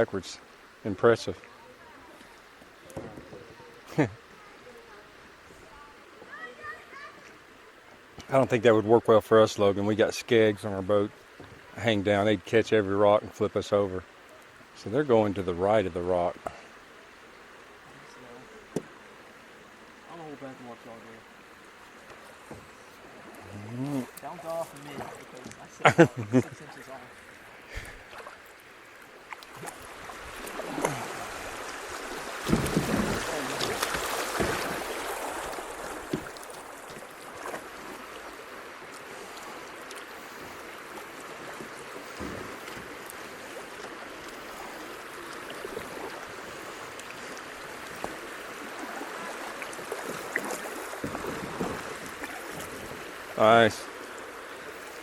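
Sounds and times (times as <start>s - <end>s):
creek water rushing over rocks: 0.0s - 55.0s
kayak paddles knocking and splashing: 2.1s - 4.0s, 18.6s - 19.2s, 20.2s - 55.0s.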